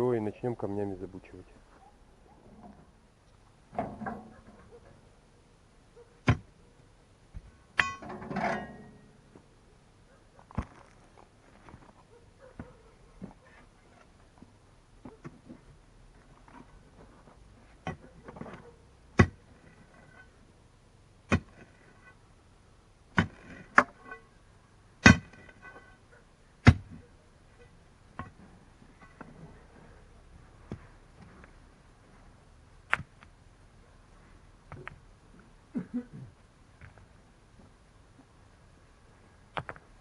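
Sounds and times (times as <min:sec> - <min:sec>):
shovel blade striking stone: 0:07.8 - 0:09.0, 0:21.3 - 0:21.7, 0:23.2 - 0:24.1, 0:25.0 - 0:25.9
metal shovel digging in soil: 0:25.0 - 0:27.0.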